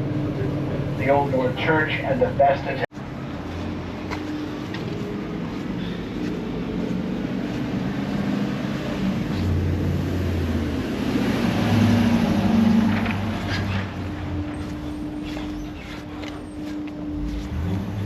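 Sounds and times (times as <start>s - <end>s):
road noise: 0.0s - 18.0s
trolley engine running: 12.0s - 18.0s.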